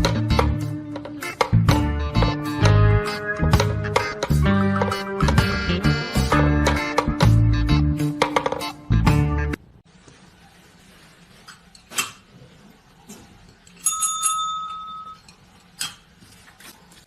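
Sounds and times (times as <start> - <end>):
music: 0.0 - 9.6
bell-like ding: 13.8 - 15.2.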